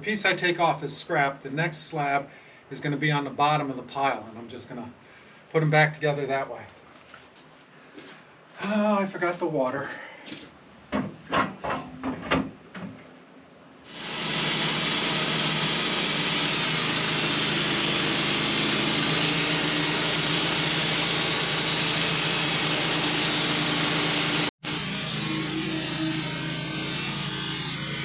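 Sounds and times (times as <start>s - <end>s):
saw blade cutting log: 13.9s - 28.0s
sawmill engine running: 13.9s - 28.0s.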